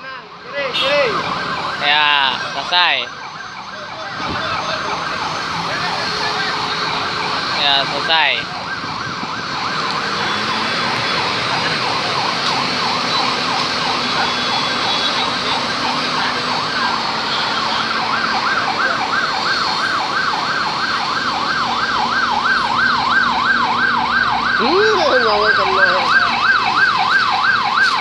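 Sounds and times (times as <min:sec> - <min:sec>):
siren yelping: 0:00.0 - 0:28.0.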